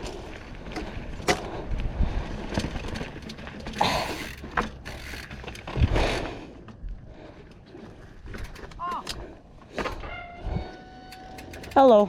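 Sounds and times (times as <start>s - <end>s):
bike freehub ticking: 0.7s - 5.7s, 8.2s - 9.4s, 10.0s - 12.0s.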